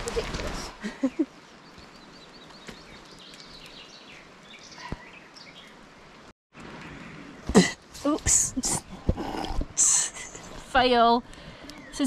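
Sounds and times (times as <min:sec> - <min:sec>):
birds singing: 0:01.0 - 0:06.1, 0:11.4 - 0:12.0.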